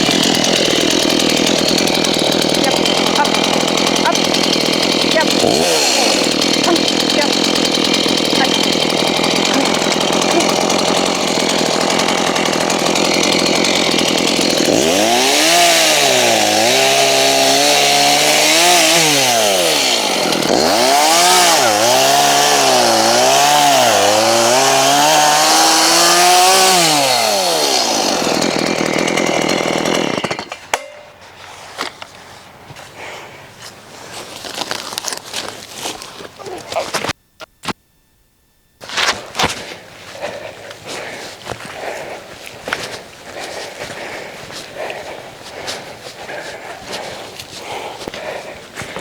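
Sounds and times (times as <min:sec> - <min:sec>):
chainsaw cutting branches: 0:00.0 - 0:37.8, 0:38.8 - 0:49.0
rustles: 0:31.1 - 0:37.8.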